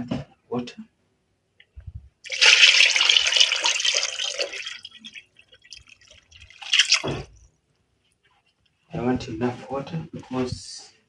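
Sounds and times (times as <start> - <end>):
water pouring and splashing: 2.2 - 7.4
water dripping: 2.2 - 7.5.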